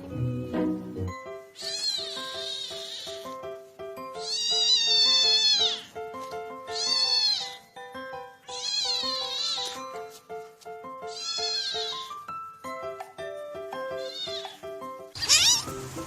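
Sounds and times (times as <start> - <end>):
light background music: 0.0 - 16.0
cat meowing high-pitched: 1.6 - 3.4, 4.1 - 5.9, 6.7 - 7.6, 8.5 - 9.8, 11.1 - 12.1, 13.9 - 15.7.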